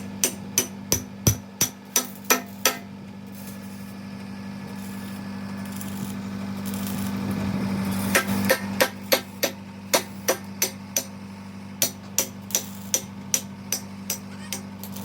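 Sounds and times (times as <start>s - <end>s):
hammer striking steel: 0.0s - 2.9s, 8.0s - 11.2s, 11.8s - 15.0s
welding arc hissing: 4.7s - 10.4s, 14.8s - 15.0s.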